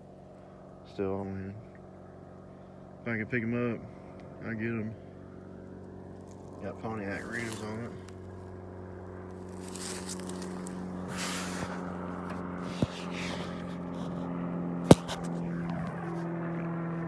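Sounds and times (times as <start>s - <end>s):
airplane passing overhead: 0.0s - 17.0s
short rustles: 7.1s - 8.1s, 9.4s - 14.3s, 14.9s - 16.3s
sharp click: 14.9s - 15.9s.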